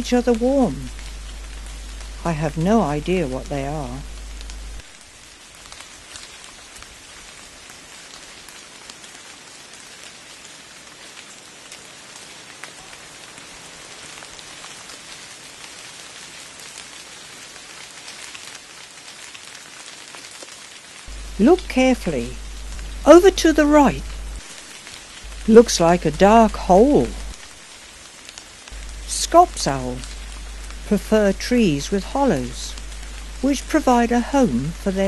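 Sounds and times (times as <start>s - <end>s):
raindrops ticking: 0.0s - 6.9s, 19.8s - 35.0s
rain pattering on foliage: 0.0s - 35.0s.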